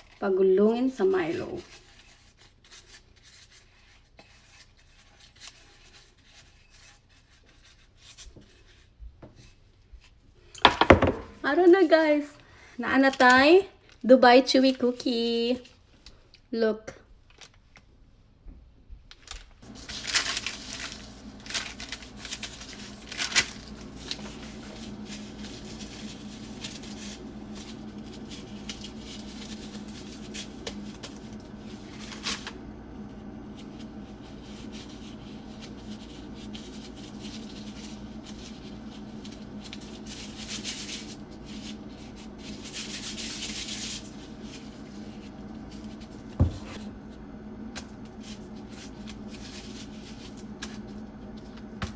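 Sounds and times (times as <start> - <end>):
rubbing and rustling handling: 0.0 - 16.2, 19.1 - 51.9
steady low hum: 19.6 - 51.9.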